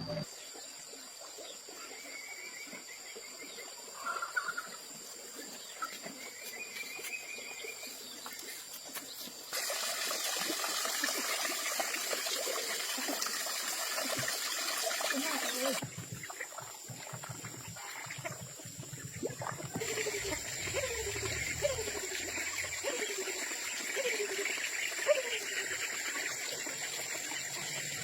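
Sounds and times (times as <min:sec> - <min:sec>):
trickling running water: 0:08.2 - 0:28.0.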